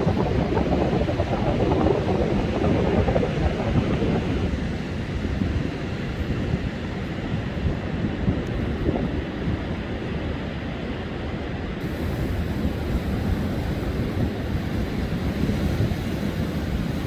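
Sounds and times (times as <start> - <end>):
surf rushing: 0.0 - 8.1, 8.7 - 17.0
wind buffeting microphone: 0.0 - 17.0
bright hiss: 11.8 - 17.0.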